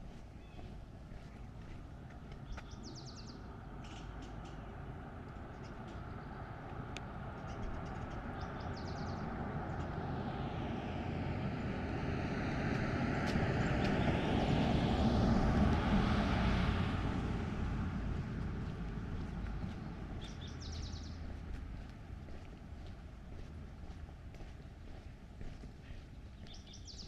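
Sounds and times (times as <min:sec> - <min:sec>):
passing vehicle rushing: 0:08.2 - 0:22.2.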